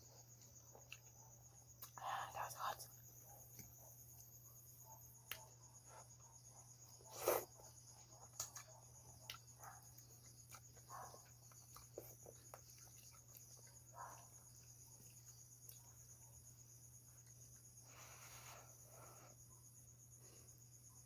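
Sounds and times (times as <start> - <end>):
crickets chirping: 0.0 - 21.0
chewing and slurping: 7.0 - 16.0.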